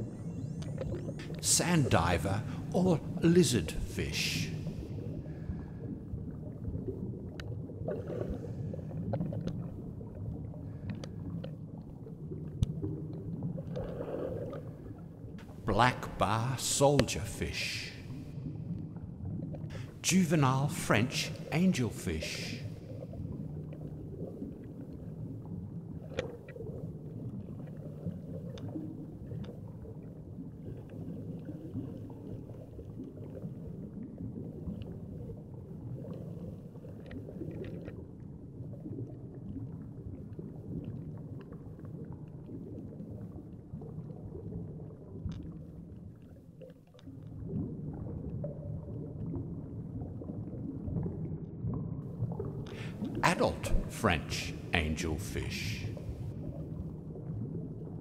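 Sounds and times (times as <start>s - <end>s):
muffled underwater rumble: 0.0s - 20.0s.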